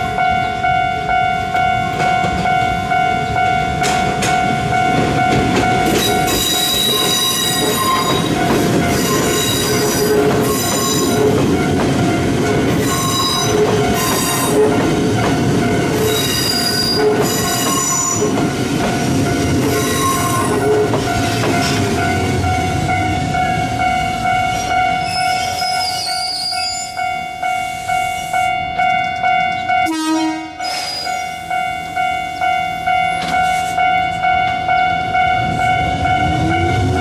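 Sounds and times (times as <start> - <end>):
train rumbling on rails: 0.0 - 37.0
high-pitched wheel squeals: 5.9 - 8.3, 12.8 - 14.6, 19.7 - 20.8, 24.5 - 27.0, 30.6 - 31.4.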